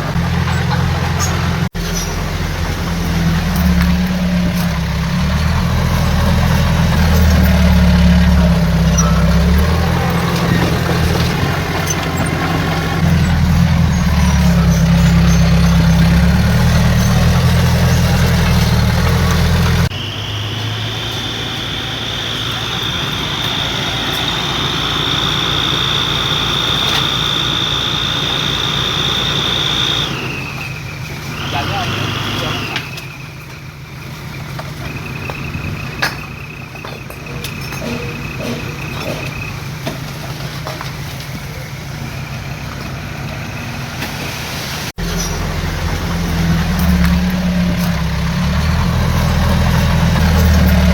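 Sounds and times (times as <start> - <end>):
heavy diesel engine rumbling: 0.0 - 50.9
high-pitched machine whine: 6.9 - 33.2.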